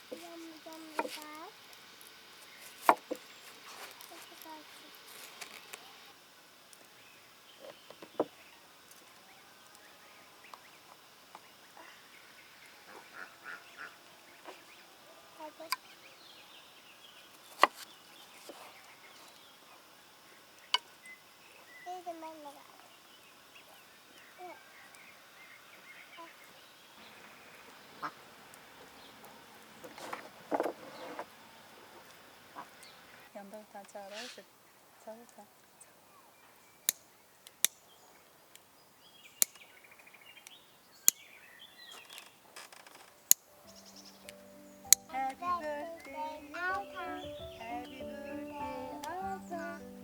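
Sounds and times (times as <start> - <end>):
faint poultry calling: 11.6 - 16.1, 24.1 - 28.4, 43.6 - 50.0
short animal calls: 12.8 - 14.1.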